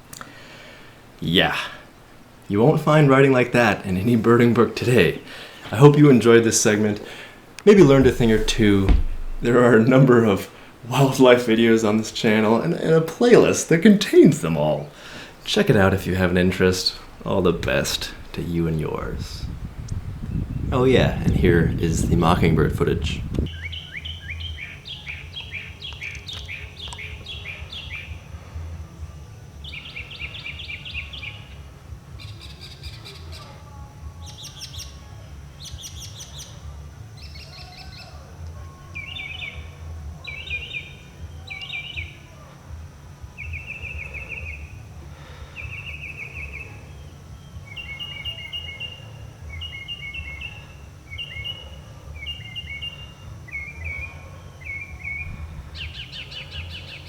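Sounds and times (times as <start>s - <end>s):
low background rumble: 7.1s - 10.9s, 14.9s - 23.5s
mockingbird singing: 47.7s - 57.0s.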